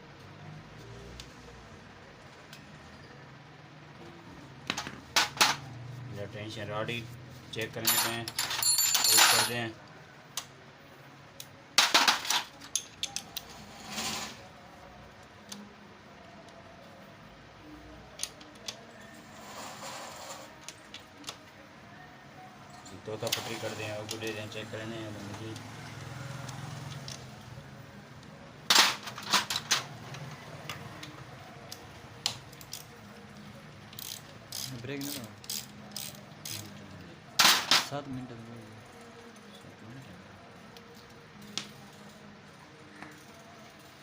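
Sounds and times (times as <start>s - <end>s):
metal parts and tools clinking: 7.6s - 9.7s, 11.8s - 14.4s, 28.7s - 30.8s, 37.4s - 38.0s
metal tools clacking: 7.6s - 9.7s
short scraping sound: 13.5s - 14.4s, 19.4s - 20.5s.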